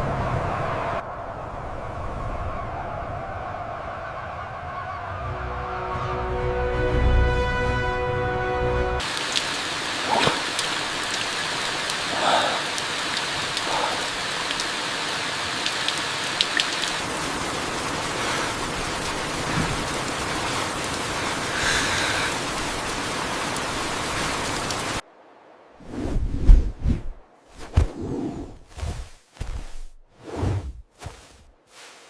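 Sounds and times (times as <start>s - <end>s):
raindrops ticking: 9.0s - 25.0s
steady rain falling: 9.0s - 25.8s.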